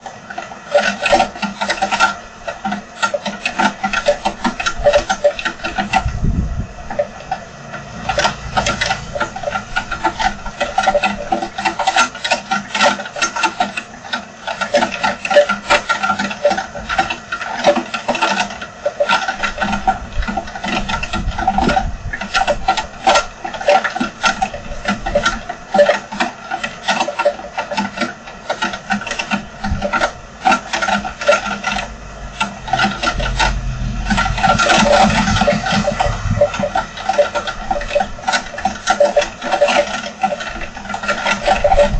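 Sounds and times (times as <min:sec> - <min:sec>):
heavy rain drumming: 0:31.6 - 0:40.0.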